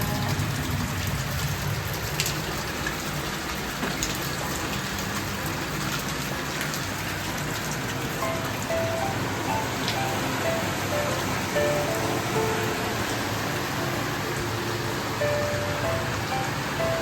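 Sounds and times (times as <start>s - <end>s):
falling water hissing: 6.9s - 17.0s.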